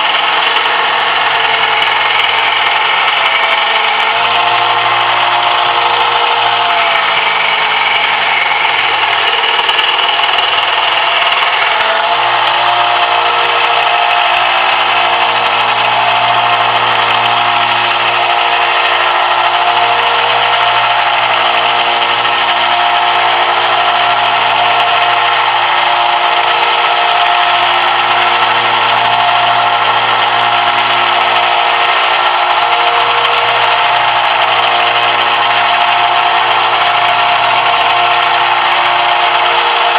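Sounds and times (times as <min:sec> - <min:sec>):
power tool grinding metal: 0:00.0 - 0:39.9.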